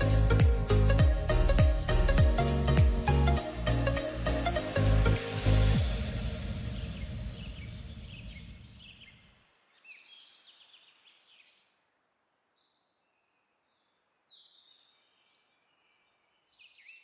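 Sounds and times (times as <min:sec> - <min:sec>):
background music: 0:00.0 - 0:08.2.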